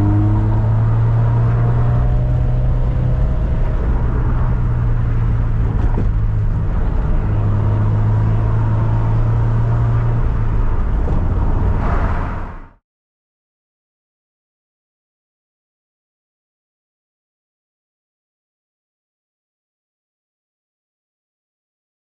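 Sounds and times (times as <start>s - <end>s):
car engine humming: 0.0s - 12.7s.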